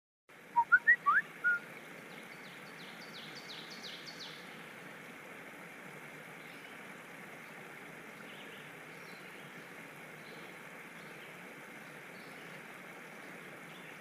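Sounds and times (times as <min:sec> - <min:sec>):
steady background hiss: 0:00.3 - 0:14.0.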